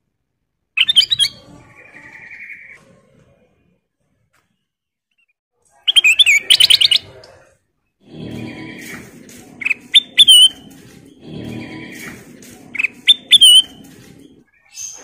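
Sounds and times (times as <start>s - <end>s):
bulbul chirping: 8.1s - 14.3s.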